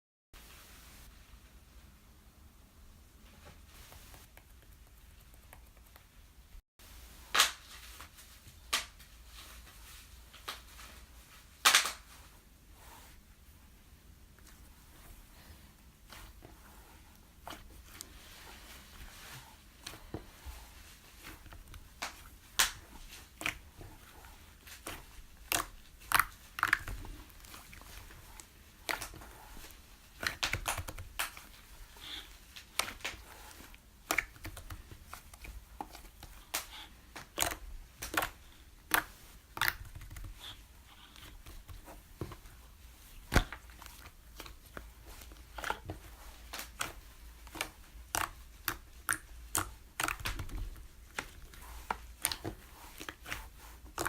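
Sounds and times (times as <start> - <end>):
slime squished by hand: 20.8 - 54.0.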